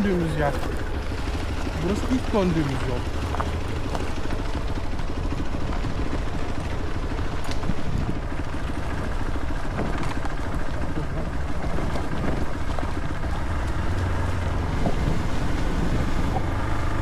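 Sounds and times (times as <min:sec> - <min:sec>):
motorcycle engine rumble: 0:00.0 - 0:17.0
wind noise on microphone: 0:03.1 - 0:17.0.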